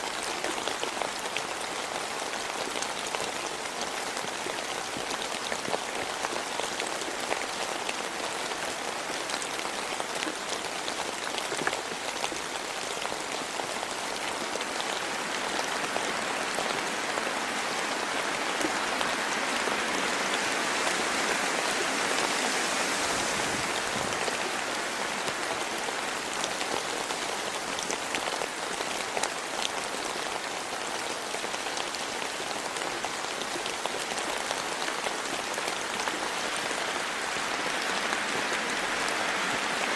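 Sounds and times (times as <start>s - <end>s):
rain drops ticking: 23.2s - 39.9s.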